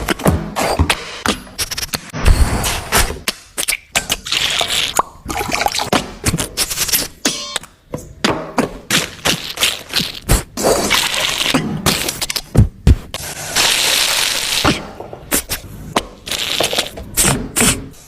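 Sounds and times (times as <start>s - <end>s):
beatboxed clicks and knocks: 0.0s - 4.2s
beatboxed hissing and pouring noises: 13.2s - 18.0s.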